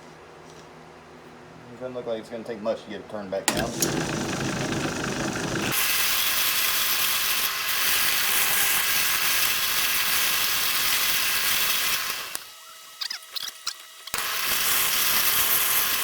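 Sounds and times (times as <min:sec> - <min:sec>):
lathe tool scraping wood: 0:03.5 - 0:05.9.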